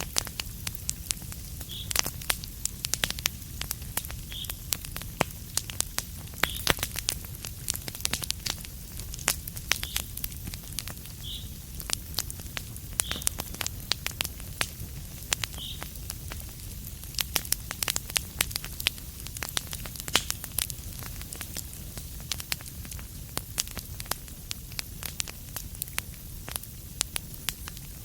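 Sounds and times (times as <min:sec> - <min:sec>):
wood fire crackling: 0:00.0 - 0:28.0
faint high chirp: 0:13.0 - 0:13.3.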